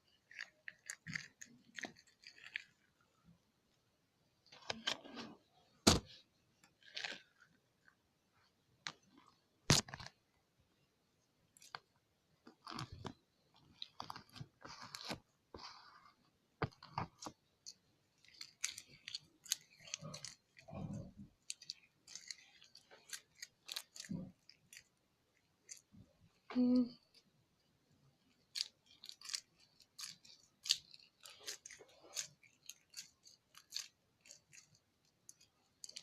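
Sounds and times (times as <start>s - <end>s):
slime squishing: 0.0s - 3.3s, 11.5s - 27.4s, 28.0s - 36.0s.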